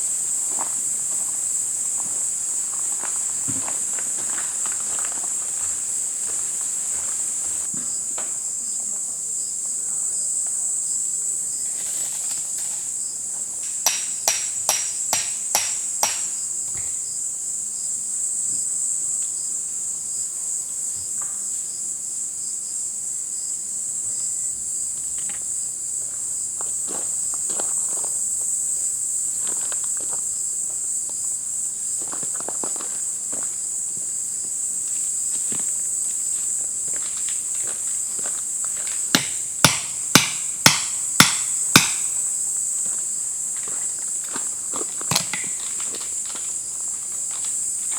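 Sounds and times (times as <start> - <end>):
high-pitched insect chorus: 0.0 - 47.9
sharp knocks: 13.8 - 16.9, 39.1 - 42.2.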